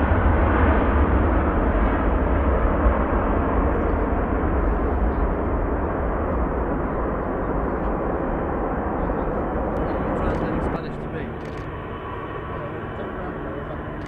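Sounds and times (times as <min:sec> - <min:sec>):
jet airliner engine rushing: 0:00.0 - 0:14.0.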